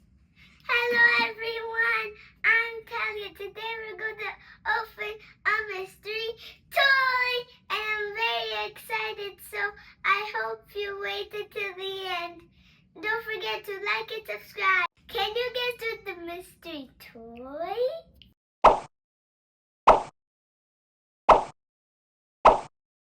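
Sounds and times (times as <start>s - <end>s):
child singing: 0.6s - 12.4s, 13.0s - 16.8s.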